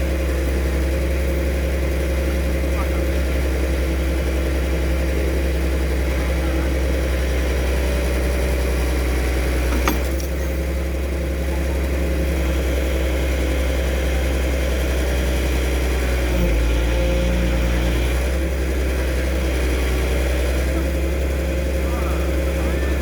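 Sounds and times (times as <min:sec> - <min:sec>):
excavator diesel engine idling: 0:00.0 - 0:23.0.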